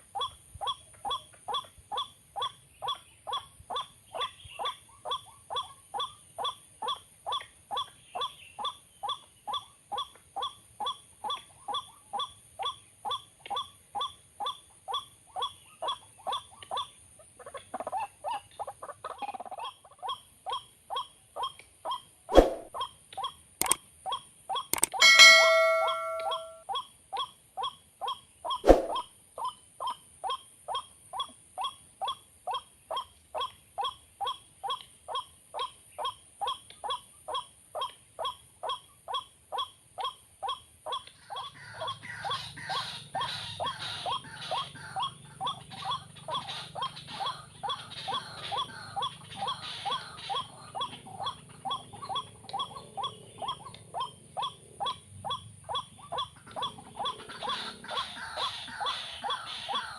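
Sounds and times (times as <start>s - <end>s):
waterhen call: 25.0s - 26.6s.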